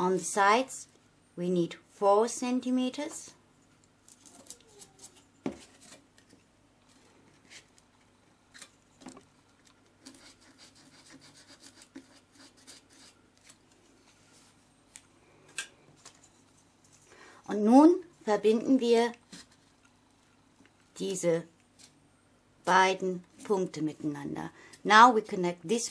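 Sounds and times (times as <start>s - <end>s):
pencil scratching on styrofoam: 10.0s - 13.2s.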